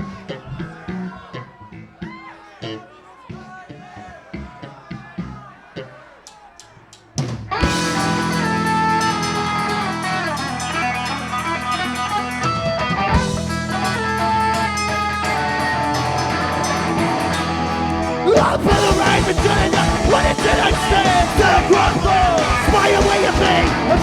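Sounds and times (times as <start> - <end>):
rock band playing loud: 0.0 - 24.0
electric guitar single notes: 7.6 - 24.0.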